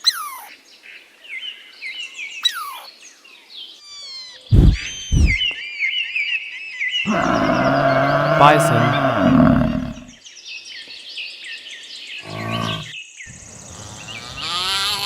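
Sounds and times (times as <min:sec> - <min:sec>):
loud thumps: 0:04.5 - 0:05.4.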